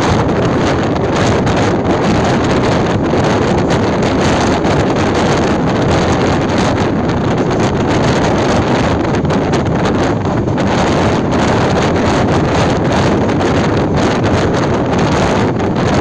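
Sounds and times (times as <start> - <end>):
train running rumble: 0.0 - 16.0
wind buffeting microphone: 0.0 - 16.0.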